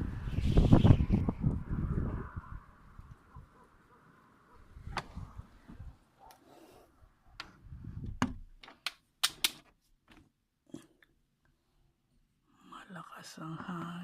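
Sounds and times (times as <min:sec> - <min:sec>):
wind rumbling on microphone: 0:00.0 - 0:03.8, 0:04.6 - 0:06.0, 0:07.4 - 0:08.5
sharp clicks and taps: 0:08.2 - 0:10.2.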